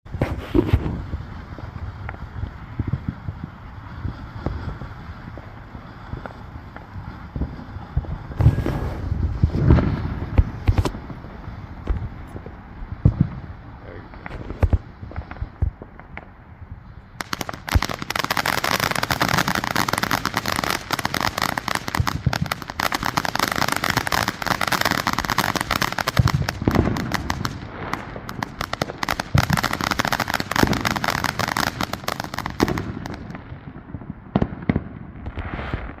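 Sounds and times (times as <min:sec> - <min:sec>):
fireworks crackling: 0:00.0 - 0:36.0
deep firework thumps: 0:00.1 - 0:18.3, 0:21.9 - 0:22.7, 0:26.1 - 0:29.7.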